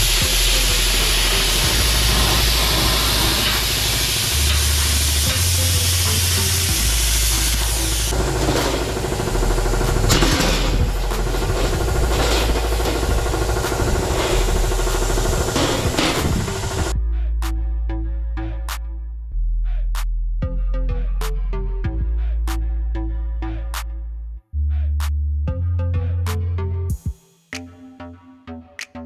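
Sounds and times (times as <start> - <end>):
plasma cutter hissing: 0.0 - 16.9.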